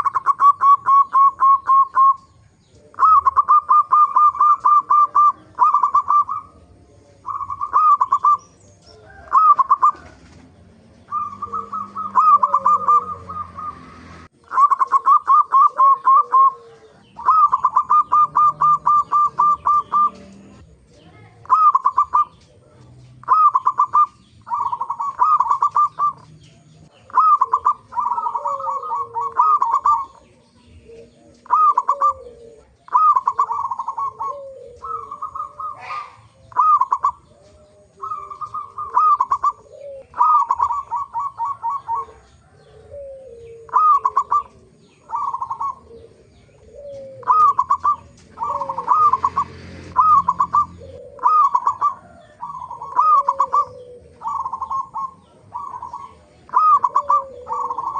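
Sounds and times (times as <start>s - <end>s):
doves cooing: 0.0s - 57.9s.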